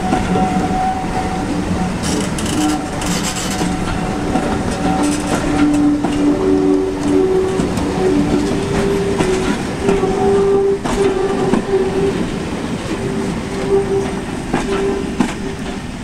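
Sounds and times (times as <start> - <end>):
train wheels clattering over rail joints: 0.0 - 16.0.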